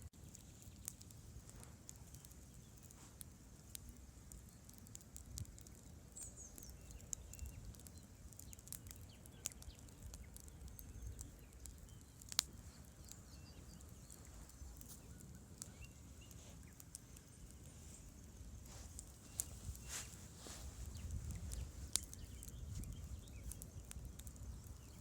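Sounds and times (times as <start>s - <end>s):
campfire crackling: 0.0s - 25.0s
fire pops and snaps: 0.0s - 25.0s
faint high chirps: 6.1s - 25.0s.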